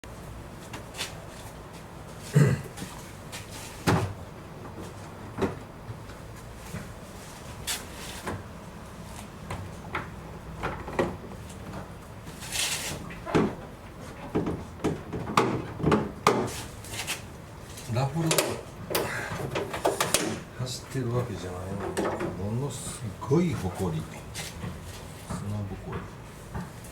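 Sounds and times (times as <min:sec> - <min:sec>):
knocks and clunks of handling: 0:03.8 - 0:06.9, 0:09.4 - 0:12.2, 0:12.9 - 0:20.6, 0:21.2 - 0:23.2, 0:23.8 - 0:26.9.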